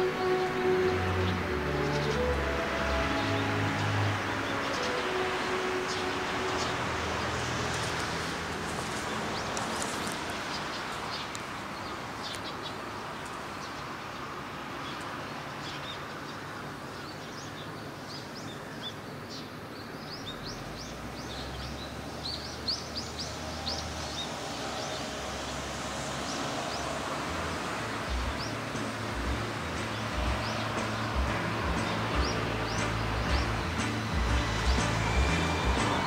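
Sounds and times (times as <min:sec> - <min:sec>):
small birds chirping: 0:00.0 - 0:36.0
steady rushing noise: 0:24.2 - 0:36.0.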